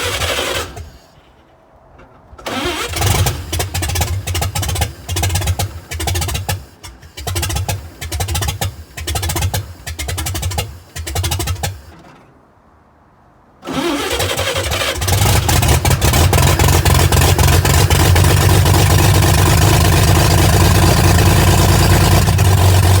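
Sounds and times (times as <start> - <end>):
starter motor cranking: 0.0 - 1.1, 2.4 - 12.0, 13.6 - 23.0
car engine running: 2.4 - 12.0, 14.9 - 23.0.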